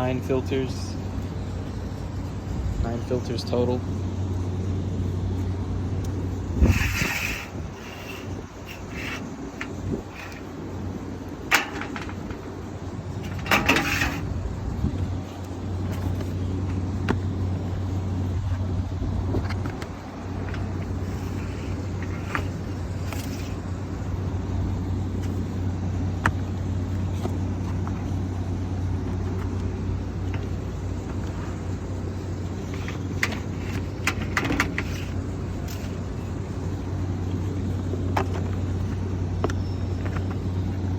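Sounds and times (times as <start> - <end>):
low machine hum: 0.0 - 40.9
scraping rustle: 6.3 - 23.8, 31.0 - 39.0.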